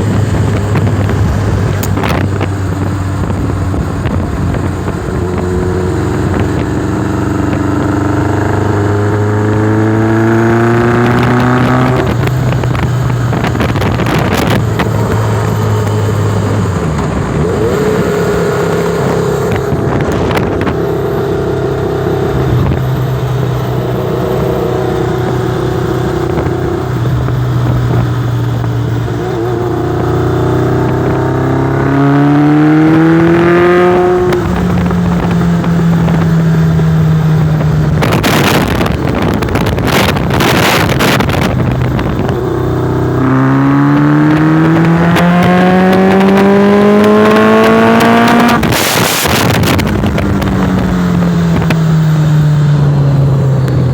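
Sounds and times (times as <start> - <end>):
motorcycle engine running: 0.0 - 53.9
wind rushing over microphone: 0.0 - 53.9.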